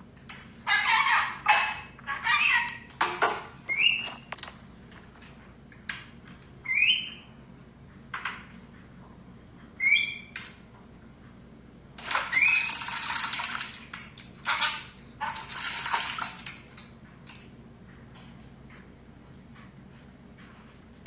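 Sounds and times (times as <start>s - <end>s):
parrot squawking: 0.6s - 2.9s, 14.4s - 15.5s.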